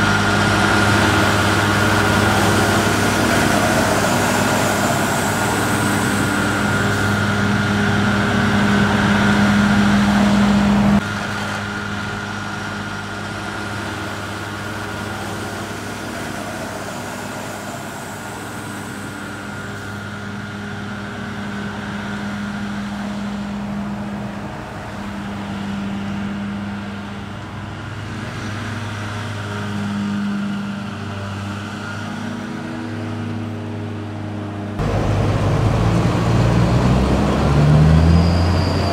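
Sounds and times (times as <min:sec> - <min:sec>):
diesel farm machinery engines: 0:00.0 - 0:38.9.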